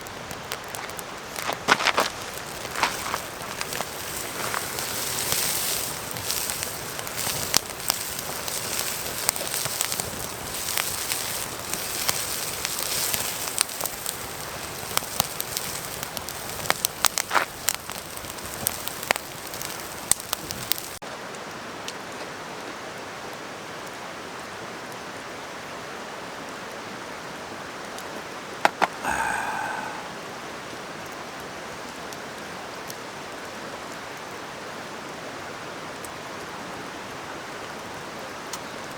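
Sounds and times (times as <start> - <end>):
wood fire crackling: 0.0 - 21.0, 28.6 - 30.1
mountain stream rushing: 0.8 - 13.5.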